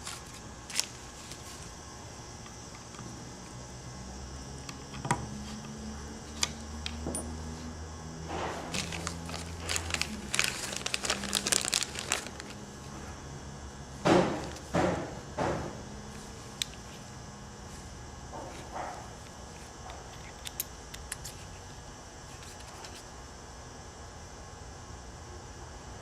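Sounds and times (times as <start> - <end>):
crinkling: 0.0 - 1.7, 8.7 - 12.6.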